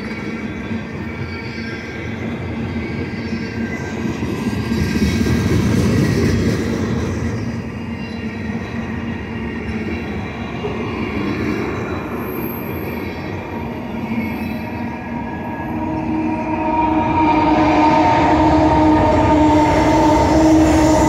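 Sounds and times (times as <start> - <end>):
train wheels rumbling on rail: 0.0 - 21.0
high-pitched wheel squeal: 11.0 - 21.0.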